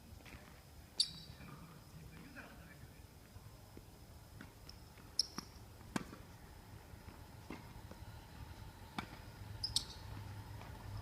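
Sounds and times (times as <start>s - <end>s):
tennis ball hit and bouncing: 4.4s - 6.3s, 7.0s - 8.0s, 8.9s - 10.8s.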